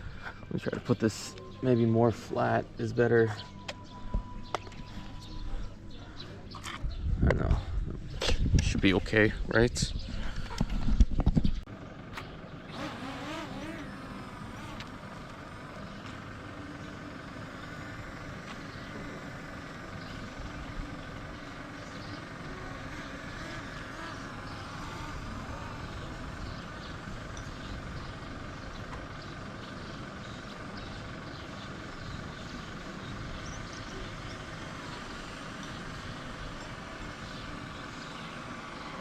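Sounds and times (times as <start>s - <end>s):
drone propellers whining: 12.6s - 28.9s.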